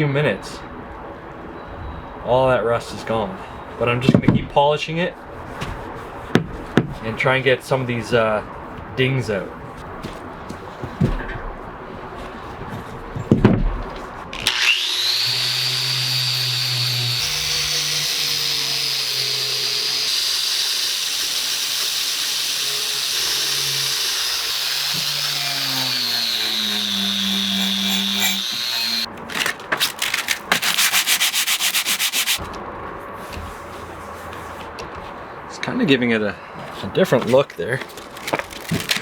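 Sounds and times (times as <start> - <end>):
angle grinder wire brush grinding: 14.4 - 29.1, 29.9 - 32.4.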